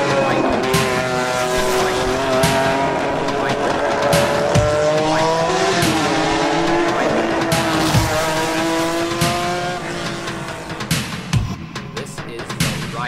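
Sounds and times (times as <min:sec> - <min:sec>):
music with deep drum hits: 0:00.0 - 0:13.0
racing car engine revving: 0:00.0 - 0:13.0.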